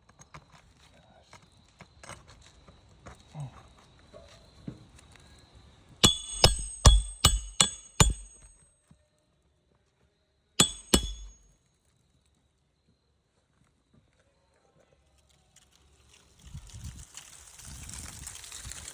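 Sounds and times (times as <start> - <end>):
hammer striking metal: 6.0 - 8.6, 10.6 - 11.4.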